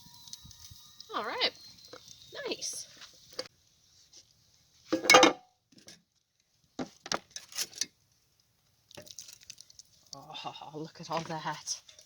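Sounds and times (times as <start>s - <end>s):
metal cookware clanking: 5.0s - 5.4s
pot and utensil clinks: 5.0s - 5.4s.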